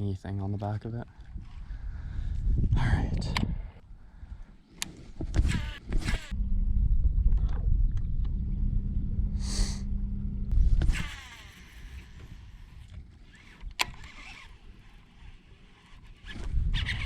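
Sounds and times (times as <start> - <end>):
electric trolling motor humming: 4.8 - 17.0.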